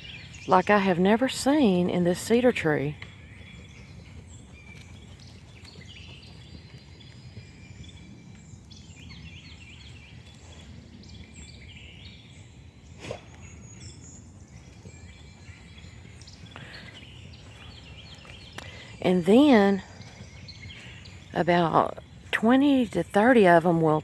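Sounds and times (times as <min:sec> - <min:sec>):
small birds chirping and twittering: 0:00.0 - 0:24.0.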